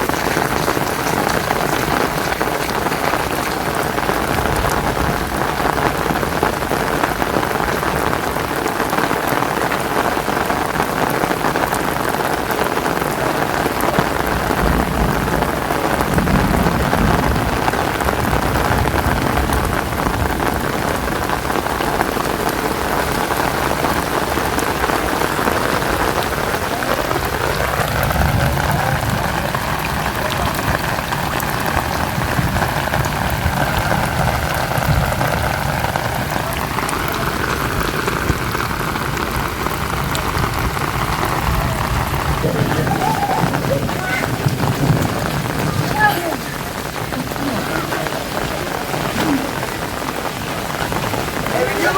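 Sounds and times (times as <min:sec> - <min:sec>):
heavy rain falling: 0:00.0 - 0:51.9.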